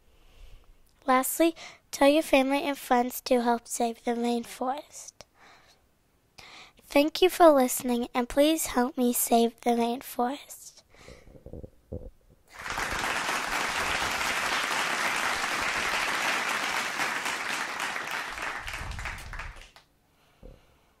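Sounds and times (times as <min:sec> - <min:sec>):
group of people clapping: 0:12.5 - 0:19.9.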